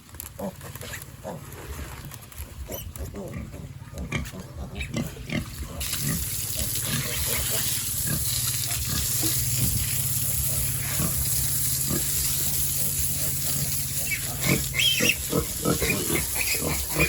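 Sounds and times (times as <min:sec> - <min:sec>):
pigs grunting: 0:00.3 - 0:17.0
hose spraying water: 0:05.2 - 0:17.0.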